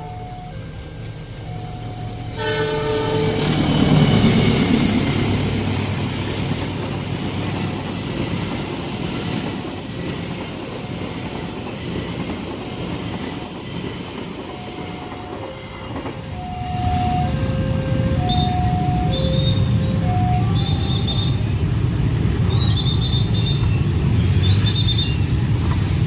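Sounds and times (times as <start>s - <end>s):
two-note electronic tone: 0.0s - 3.5s, 14.6s - 21.4s
train passing on rails: 0.0s - 26.0s.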